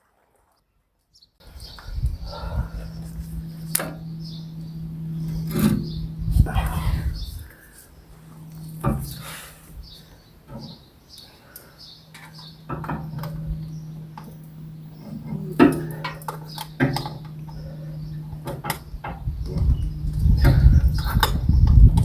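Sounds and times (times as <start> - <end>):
low steady hum: 1.4 - 22.0
rumbling handling noise: 1.4 - 22.0
knocks and clanks of metal objects: 12.1 - 19.2.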